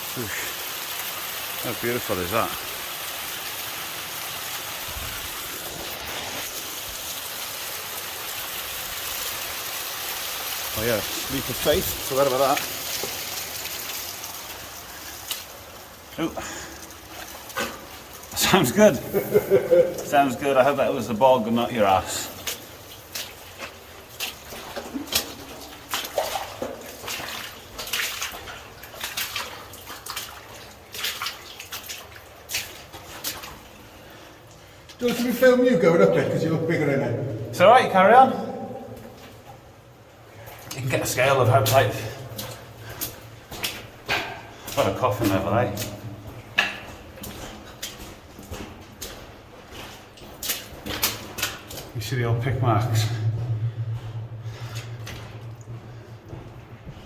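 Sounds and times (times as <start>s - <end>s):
running water hissing: 0.0s - 24.0s
boots squelching through water and mud: 1.8s - 36.4s, 38.3s - 57.0s
soft low thuds: 52.8s - 57.0s.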